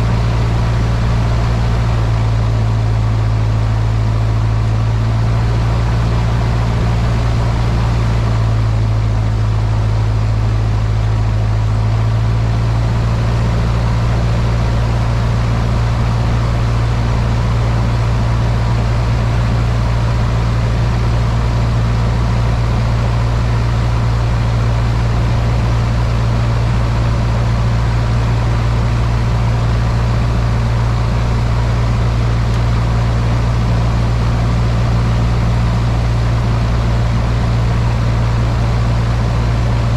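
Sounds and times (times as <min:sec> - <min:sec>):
airplane engine and propeller drone: 0:00.0 - 0:39.9.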